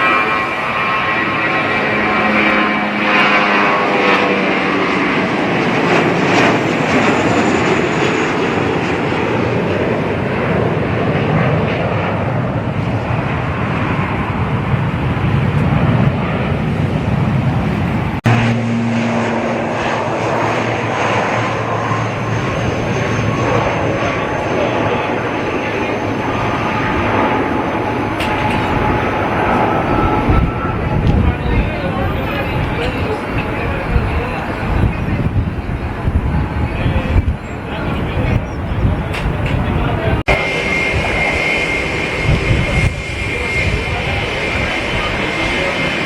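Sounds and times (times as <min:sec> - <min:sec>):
jet engines rushing and whining: 0:00.0 - 0:46.0
engine low hum: 0:18.1 - 0:22.3.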